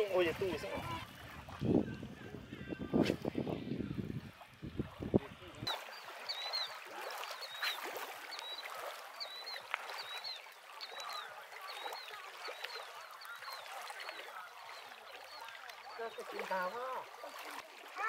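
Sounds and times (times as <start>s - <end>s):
lapping water: 0.0s - 18.0s
bird chirping: 5.7s - 14.2s.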